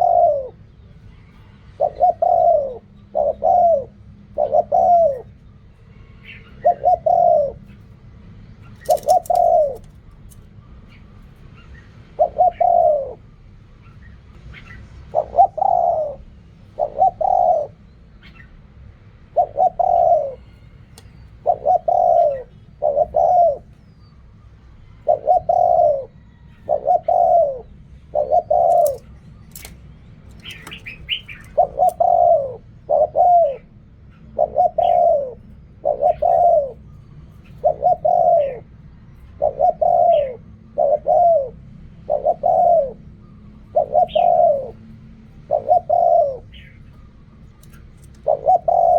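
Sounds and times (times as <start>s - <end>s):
dove cooing: 0.0s - 0.7s, 1.7s - 5.4s, 6.2s - 7.9s, 8.6s - 10.4s, 12.1s - 13.4s, 14.7s - 18.4s, 19.2s - 48.9s.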